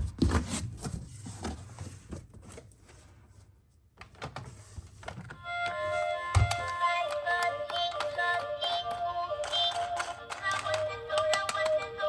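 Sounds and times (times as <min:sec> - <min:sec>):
plastic toys clicking and knocking: 0:06.3 - 0:12.0.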